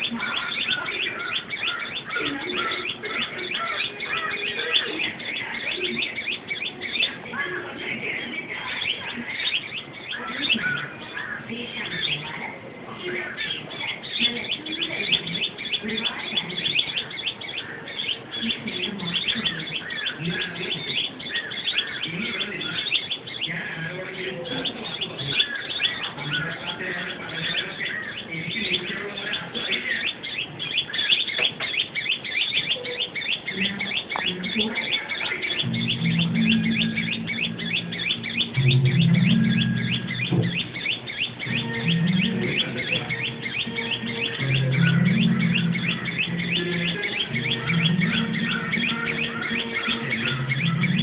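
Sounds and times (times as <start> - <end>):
small birds chirping: 0.0 - 51.0
low steady hum: 35.6 - 49.4.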